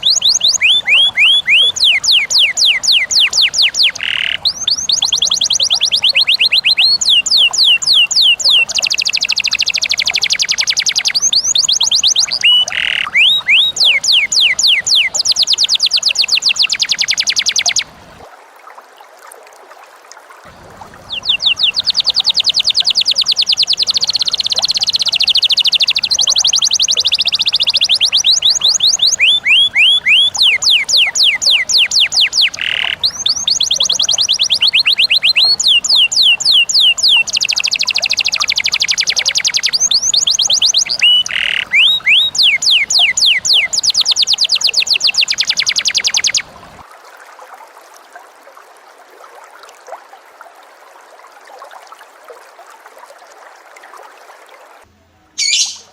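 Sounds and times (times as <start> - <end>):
birds singing high chirps: 0.0 - 18.0, 20.7 - 46.8, 55.4 - 55.9.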